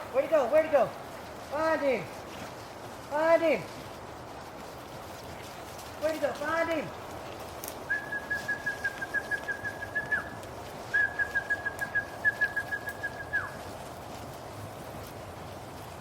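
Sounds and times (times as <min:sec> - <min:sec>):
person whistling warbling whistles: 0:07.9 - 0:13.6.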